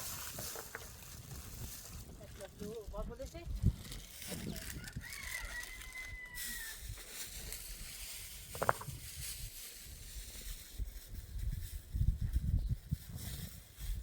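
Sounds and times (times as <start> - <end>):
rooster crowing: 4.7 - 6.8.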